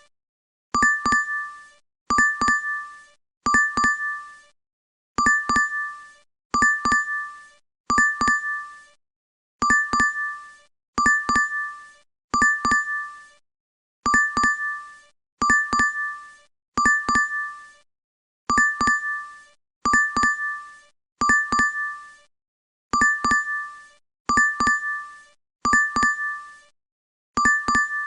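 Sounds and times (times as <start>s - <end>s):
bright notification dings: 25.7s - 26.3s, 27.4s - 28.0s.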